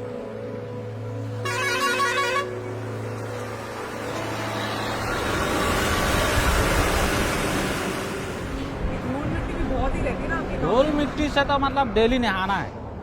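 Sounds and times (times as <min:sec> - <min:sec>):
road traffic noise: 0:00.0 - 0:13.0
vehicle horn toot: 0:01.4 - 0:02.7
vehicle passing by: 0:02.8 - 0:12.0.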